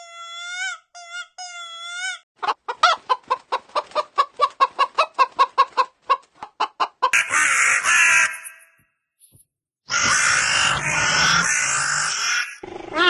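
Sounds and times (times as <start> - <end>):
chicken clucking: 2.4 - 7.9
harsh chicken call: 7.1 - 8.6, 9.9 - 13.0.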